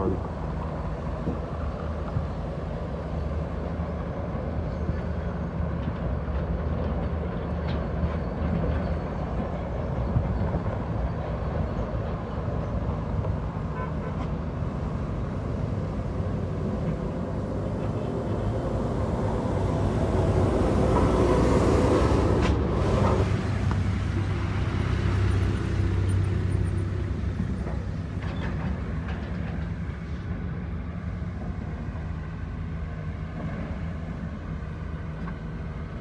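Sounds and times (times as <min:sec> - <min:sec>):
diesel truck engine running: 0:12.3 - 0:29.6.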